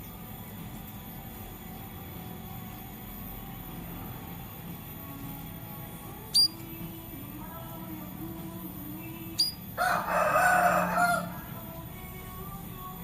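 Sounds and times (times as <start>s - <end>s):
small bird chirping: 6.3s - 6.6s, 9.2s - 9.6s
rooster crowing: 9.8s - 11.6s.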